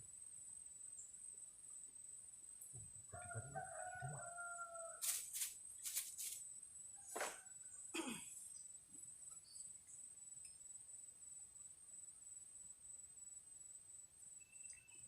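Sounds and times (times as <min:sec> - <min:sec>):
rooster crowing: 0:03.1 - 0:05.2
high insect buzz: 0:03.2 - 0:06.5.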